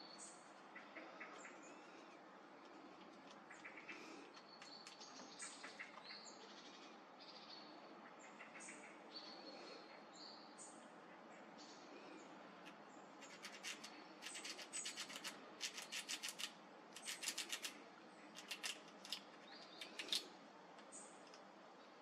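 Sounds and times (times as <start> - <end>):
squirrel gnawing on a nut: 13.2 - 20.3.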